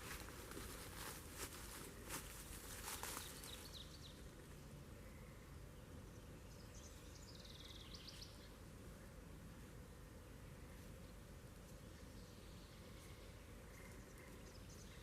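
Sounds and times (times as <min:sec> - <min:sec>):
distant bird chirps and trill: 0:12.0 - 0:15.0.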